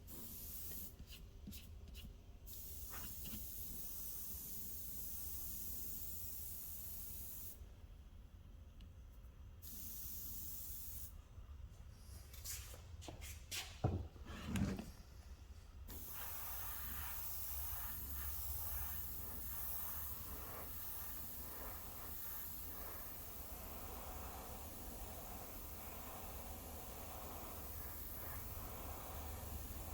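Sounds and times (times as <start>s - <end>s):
paint spray gun hissing: 0.0s - 1.2s, 2.5s - 7.6s, 15.9s - 29.9s
knocks and dull thumps: 13.8s - 14.8s.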